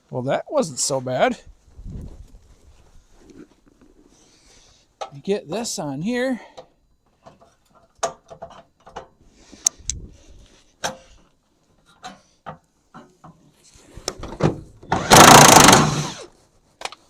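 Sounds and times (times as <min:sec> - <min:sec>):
hand tools clicking and knocking: 0:06.5 - 0:09.2, 0:14.1 - 0:16.2.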